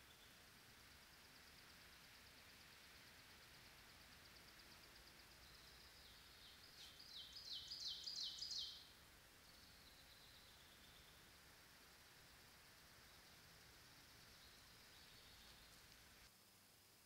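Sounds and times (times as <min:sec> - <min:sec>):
songbird singing high notes: 0:06.1 - 0:08.9.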